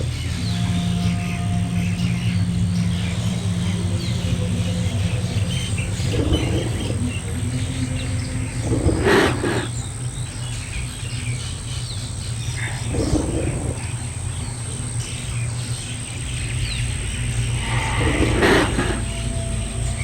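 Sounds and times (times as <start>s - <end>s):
animal hoarse calls: 0.0s - 9.8s, 12.6s - 14.1s, 17.2s - 20.0s
faint bird chirps: 0.0s - 20.0s
steady low rumble: 0.0s - 20.0s.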